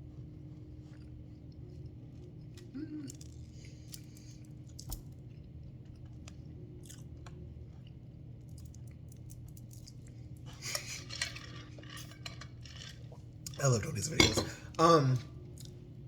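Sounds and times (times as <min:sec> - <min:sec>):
chewing doughnut: 0:00.0 - 0:10.4
steady low hum: 0:00.0 - 0:16.0.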